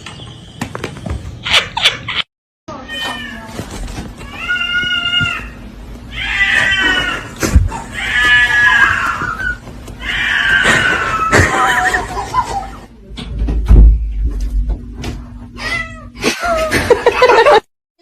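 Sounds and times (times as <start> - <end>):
cat meowing loudly: 4.2 - 7.3, 7.9 - 11.4.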